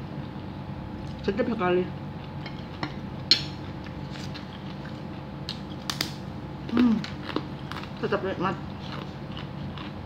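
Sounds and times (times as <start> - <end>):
person humming: 6.7 - 7.1
chewing and mouth smacks: 6.7 - 8.0, 8.7 - 10.0.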